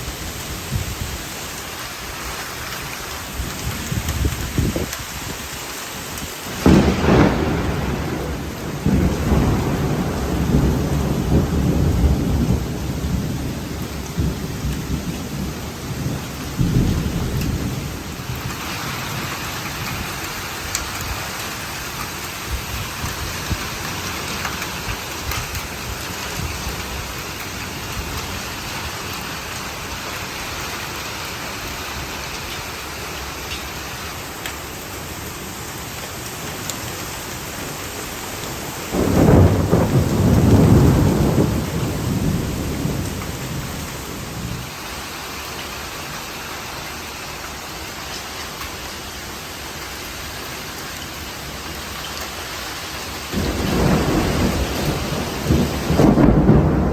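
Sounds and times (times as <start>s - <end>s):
steady rain: 0.0s - 56.9s
thunder rolling: 6.5s - 18.5s, 38.9s - 44.6s, 53.3s - 56.9s.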